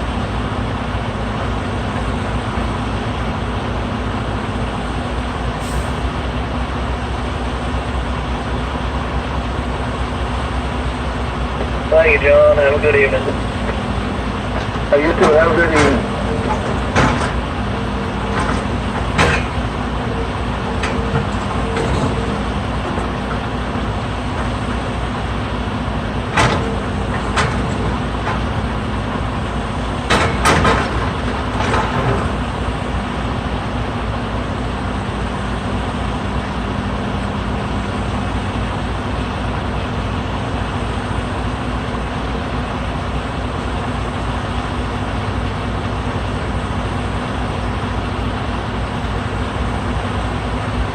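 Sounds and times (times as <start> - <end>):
diesel engine running: 0.0 - 50.9
sharp knocks and clanks: 14.5 - 23.4, 26.3 - 28.6, 30.0 - 32.5.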